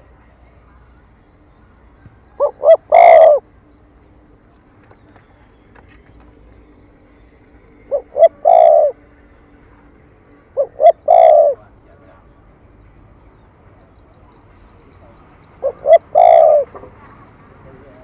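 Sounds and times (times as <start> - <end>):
dove cooing: 2.3 - 3.5, 7.8 - 9.1, 10.5 - 11.8, 15.5 - 18.0.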